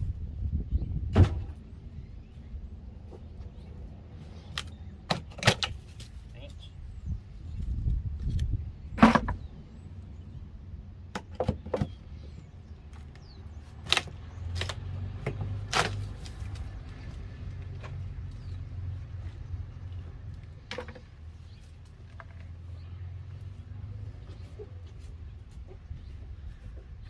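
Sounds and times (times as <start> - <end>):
wall boards knocking and cracking: 9.0 - 9.4.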